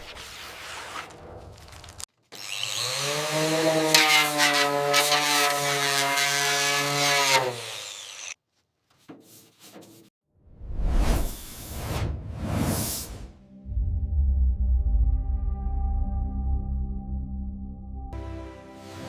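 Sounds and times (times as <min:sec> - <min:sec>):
power tool motor whining: 0:02.3 - 0:08.4.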